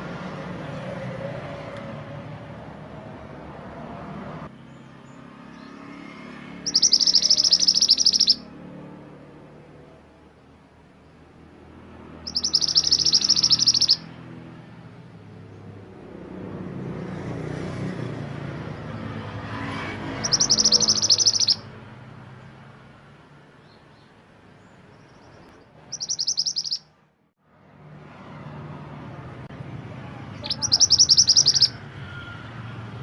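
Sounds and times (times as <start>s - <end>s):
songbird trilling: 6.6s - 8.5s, 12.2s - 14.1s, 20.2s - 21.7s, 24.9s - 26.9s, 30.4s - 31.8s.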